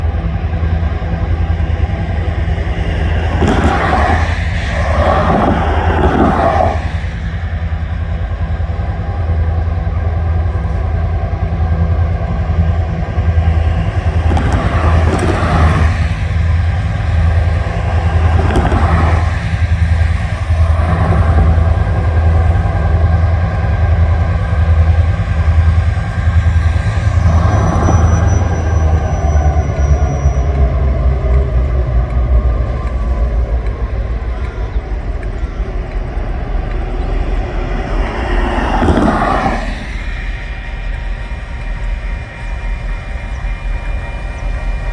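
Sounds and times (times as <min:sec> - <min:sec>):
low engine drone: 0:00.0 - 0:44.9
road vehicles passing by: 0:00.0 - 0:44.9.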